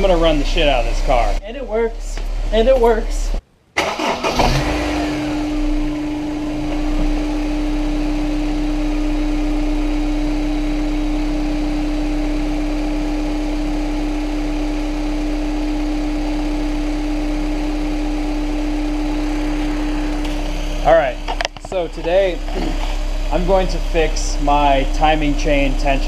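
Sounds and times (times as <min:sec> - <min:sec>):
car engine idling: 0:00.0 - 0:26.0
engine ticking: 0:18.4 - 0:26.0.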